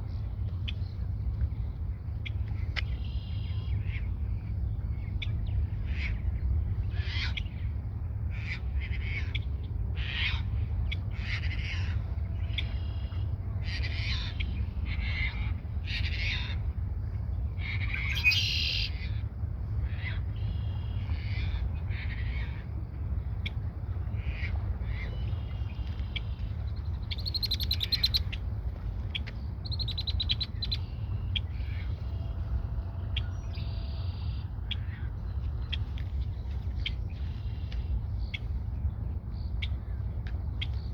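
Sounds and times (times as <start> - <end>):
steady low rumble: 0.0 - 40.9
buzzy trilling bird song: 18.1 - 18.9, 27.0 - 28.4, 29.6 - 31.5.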